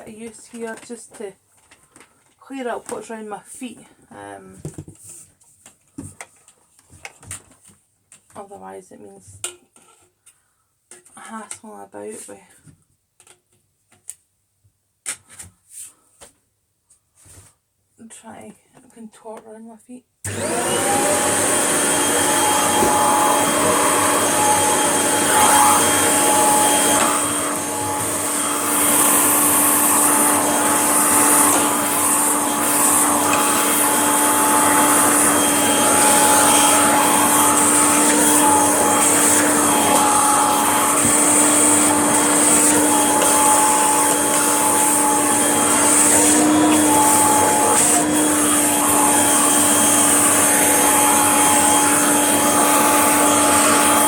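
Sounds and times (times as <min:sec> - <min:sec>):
vacuum cleaner running: 0:20.3 - 0:54.0.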